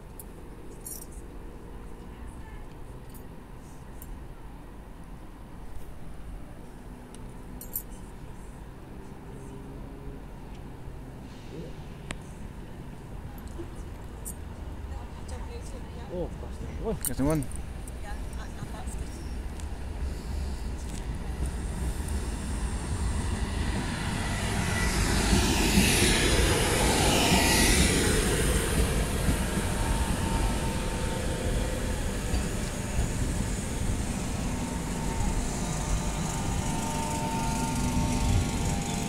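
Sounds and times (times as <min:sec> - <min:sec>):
train rumbling past: 0:08.6 - 0:39.0
thin high whine: 0:21.8 - 0:39.0.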